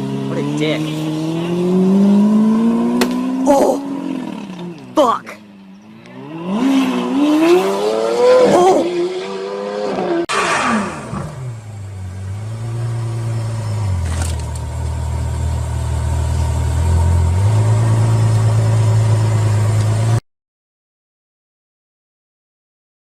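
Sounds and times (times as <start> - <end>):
car engine revving: 0.0 - 5.0, 5.7 - 20.2
low engine hum: 10.8 - 20.2.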